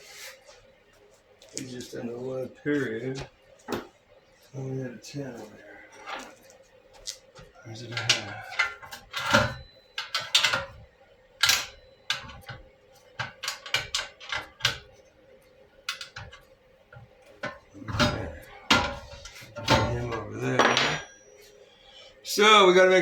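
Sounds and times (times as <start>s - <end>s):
metal tools clinking: 7.8s - 10.7s, 17.4s - 21.2s.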